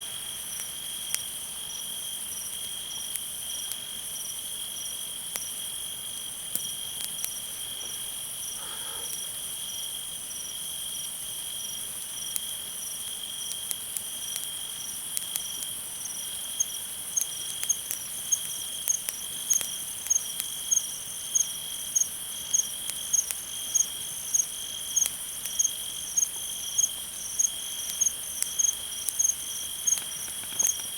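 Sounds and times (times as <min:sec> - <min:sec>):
campfire crackling: 0:00.0 - 0:30.9
crickets trilling: 0:00.1 - 0:30.9
nearby cricket chirping: 0:05.5 - 0:10.6, 0:16.1 - 0:30.9.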